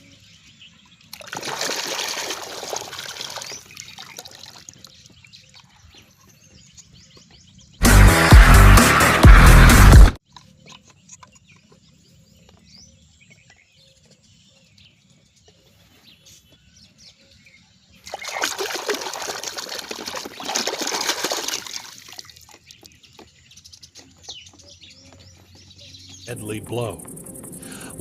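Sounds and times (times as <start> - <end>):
water splashing and trickling: 0.9 - 6.0, 18.0 - 24.1
loud music: 7.8 - 10.2.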